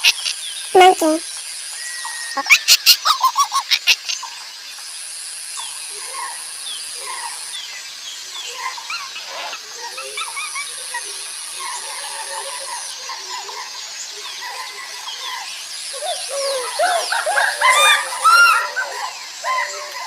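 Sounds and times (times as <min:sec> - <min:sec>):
high chirping animal calls: 0:16.0 - 0:19.9.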